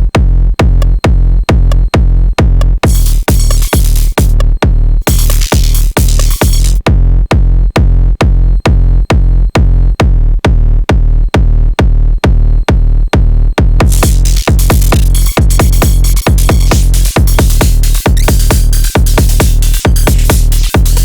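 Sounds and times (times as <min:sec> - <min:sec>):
drum machine techno kick: 0:00.0 - 0:21.0
bright high percussion: 0:02.9 - 0:04.4, 0:05.0 - 0:06.8, 0:13.8 - 0:21.0.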